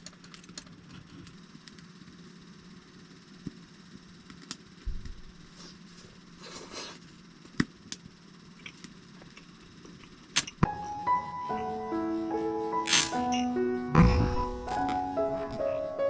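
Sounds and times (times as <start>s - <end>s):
low steady hum: 0.0s - 16.0s
small objects clicking and knocking: 12.8s - 13.5s
low thump: 14.0s - 14.8s.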